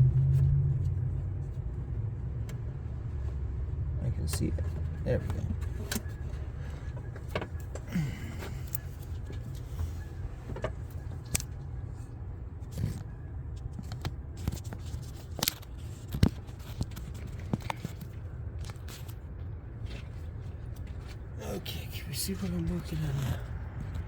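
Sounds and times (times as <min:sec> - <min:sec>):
steady low hum: 0:00.0 - 0:24.0
hands handling engine parts: 0:04.3 - 0:21.4.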